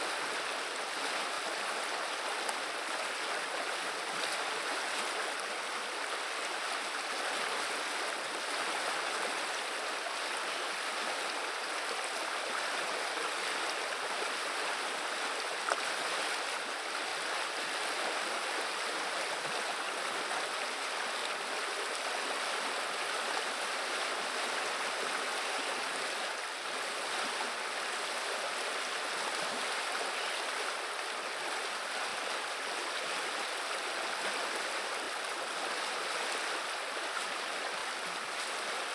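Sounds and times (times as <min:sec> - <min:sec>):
river water rushing: 0:00.0 - 0:38.9
faint tick: 0:15.6 - 0:15.8.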